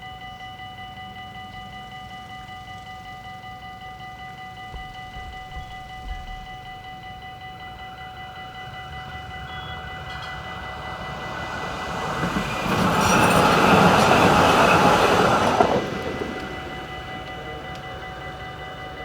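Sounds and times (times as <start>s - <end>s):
train wheels rumbling on rails: 4.3s - 19.0s
steady high tones: 4.5s - 19.0s.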